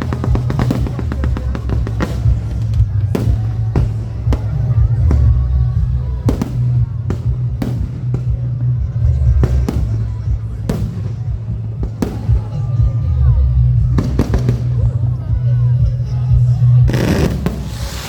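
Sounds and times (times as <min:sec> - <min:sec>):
fireworks banging: 0:00.0 - 0:05.4, 0:06.2 - 0:12.8, 0:16.9 - 0:18.0
music playing: 0:00.0 - 0:18.0.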